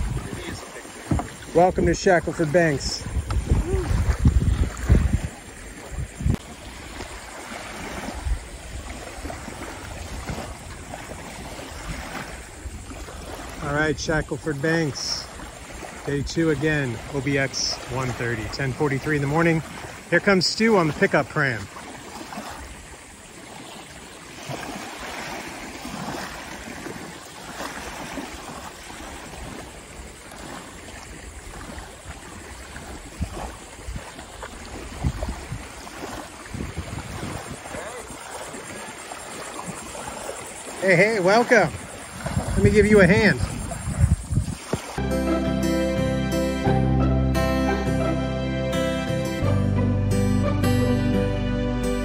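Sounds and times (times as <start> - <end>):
wind buffeting microphone: 0.0 - 20.1, 29.0 - 45.0
small waves lapping: 0.0 - 46.0.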